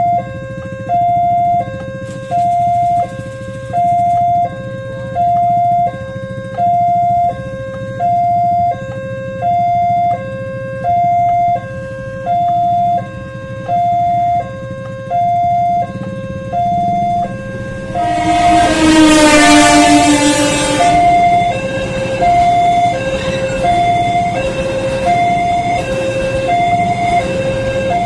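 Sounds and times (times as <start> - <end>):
two-tone crossing alarm: 0.0 - 28.0
train horn: 17.2 - 28.0.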